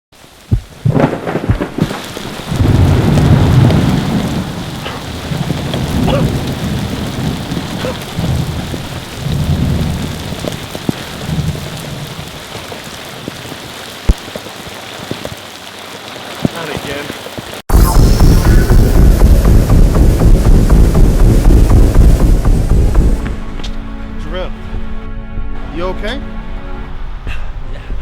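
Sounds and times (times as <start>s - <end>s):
steady rain: 0.1s - 24.4s
low rolls of thunder: 0.5s - 13.6s, 17.7s - 23.6s.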